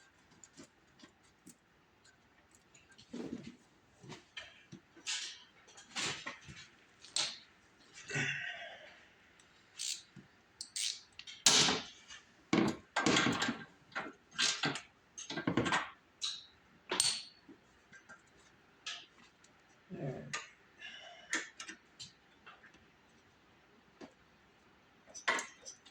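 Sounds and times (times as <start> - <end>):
hands working on snowblower parts: 0.0 - 8.0.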